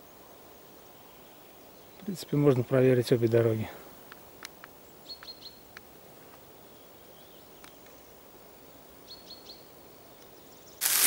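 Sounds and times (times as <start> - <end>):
small bird calling: 4.9 - 5.8.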